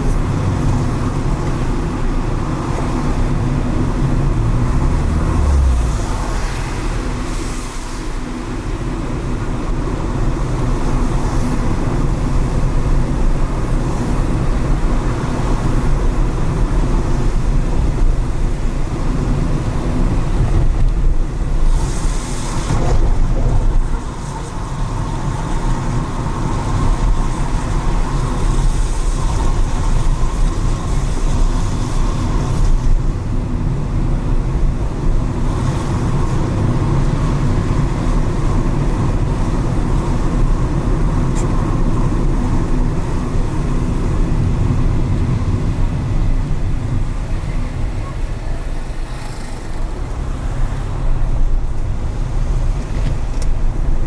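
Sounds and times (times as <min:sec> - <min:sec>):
car engine and road rumble: 0:00.0 - 0:54.0
tyre hiss on wet road: 0:04.1 - 0:09.6, 0:21.4 - 0:33.3.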